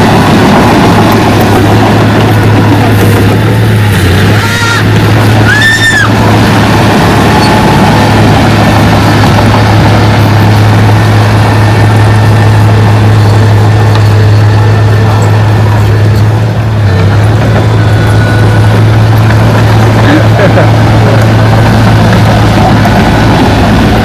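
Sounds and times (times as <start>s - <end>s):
diesel engine running: 0.0s - 24.0s
high squeal: 4.0s - 6.2s.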